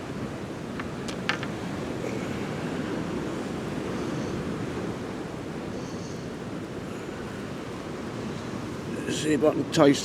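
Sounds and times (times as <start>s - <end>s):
surf washing against pier: 0.0s - 5.7s.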